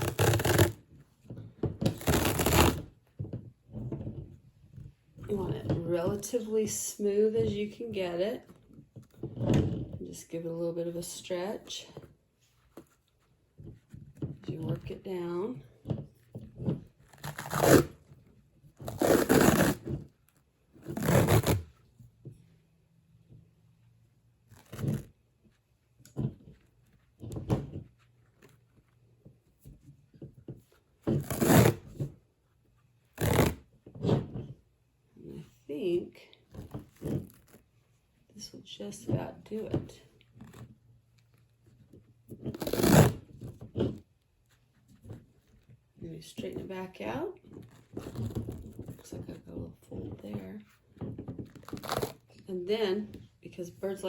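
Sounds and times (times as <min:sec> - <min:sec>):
tape pulled off roll: 0:00.0 - 0:00.8, 0:01.8 - 0:02.9, 0:33.2 - 0:34.4
wrap tape peeling with crackly tear: 0:00.0 - 0:00.8, 0:01.9 - 0:02.9, 0:17.0 - 0:18.0, 0:18.8 - 0:19.9, 0:20.8 - 0:21.7, 0:24.5 - 0:25.1, 0:31.1 - 0:31.8, 0:33.1 - 0:33.6, 0:42.4 - 0:43.3, 0:51.5 - 0:52.3.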